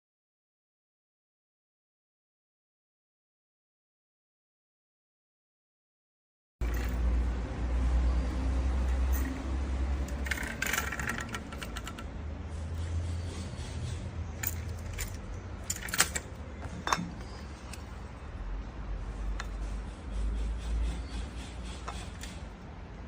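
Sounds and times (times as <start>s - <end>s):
jangling clicks: 6.6s - 7.1s, 8.9s - 9.4s, 10.0s - 12.1s, 14.4s - 17.9s
metal parts clinking: 6.6s - 7.1s, 8.9s - 12.1s, 14.4s - 17.9s.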